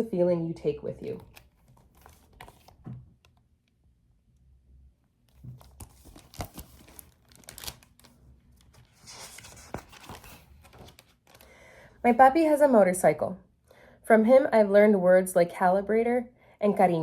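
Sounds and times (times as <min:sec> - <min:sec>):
page turning rustle: 0:01.1 - 0:03.0, 0:05.3 - 0:11.5.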